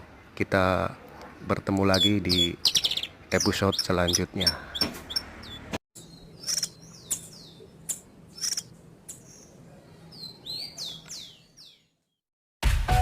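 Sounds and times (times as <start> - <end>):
songbird chirping and whistling: 1.9 - 7.7, 9.2 - 11.9.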